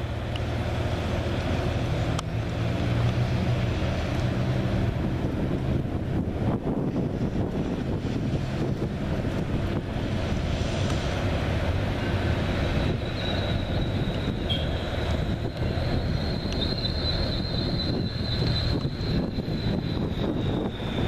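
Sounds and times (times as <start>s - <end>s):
train rumbling past: 0.0s - 21.0s
high-pitched squeal: 10.0s - 21.0s.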